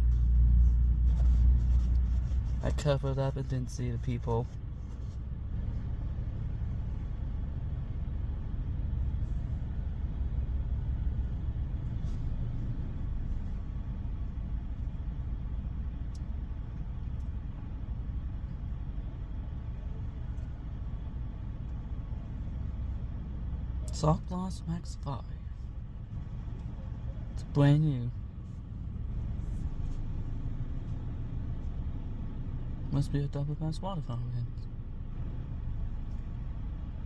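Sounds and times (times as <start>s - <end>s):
vehicle idling rumble: 0.0s - 37.0s.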